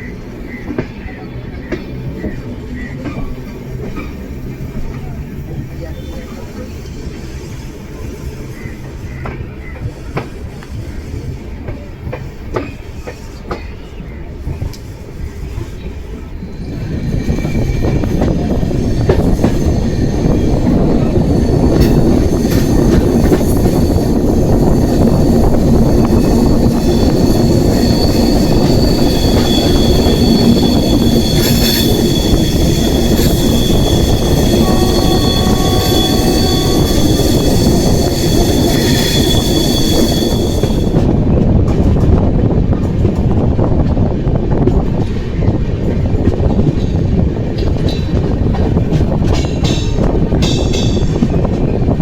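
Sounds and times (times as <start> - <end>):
train rumbling on rails: 0.0 - 52.0
high wheel squeal: 16.4 - 41.0.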